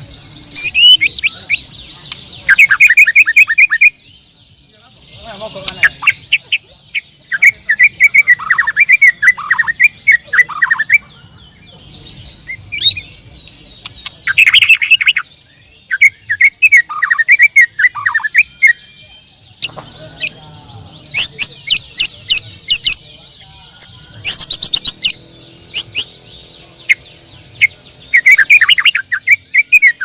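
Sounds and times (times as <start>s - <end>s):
canaries singing chirping trills: 0.0s - 30.0s.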